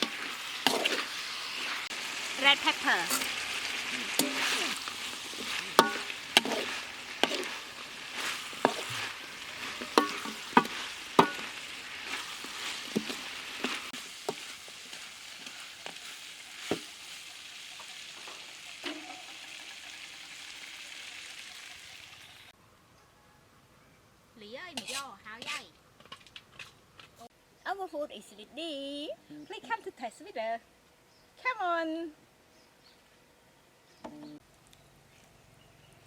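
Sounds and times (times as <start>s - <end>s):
chicken sizzling in a pan: 0.0s - 22.5s
spatula clinking on a pan: 5.8s - 7.5s, 9.6s - 11.6s.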